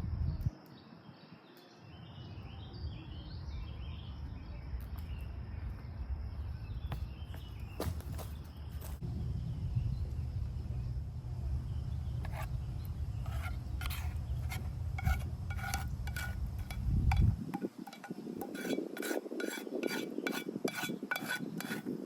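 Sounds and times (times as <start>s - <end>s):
low outdoor rumble: 8.5s - 18.6s.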